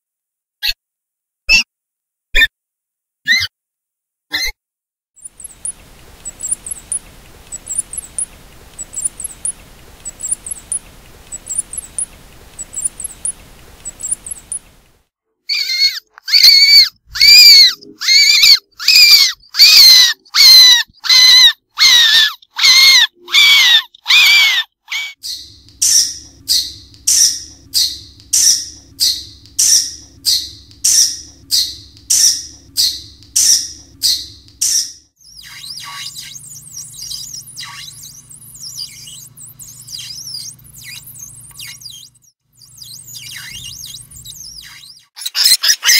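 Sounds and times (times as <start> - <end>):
mouse squeaking: 5.2 - 14.9, 15.5 - 45.9
low steady hum: 5.3 - 15.0, 25.2 - 42.0.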